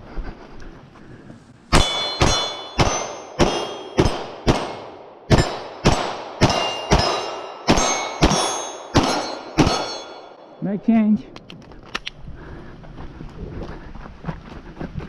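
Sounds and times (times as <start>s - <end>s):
steel plate clanging: 1.7s - 10.8s
rapid gunfire: 2.8s - 9.9s.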